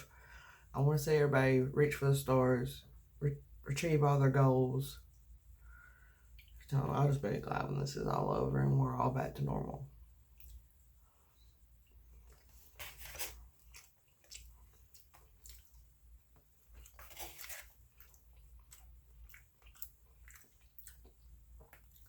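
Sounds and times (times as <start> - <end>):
person chewing food: 5.7 - 6.7, 10.1 - 22.0.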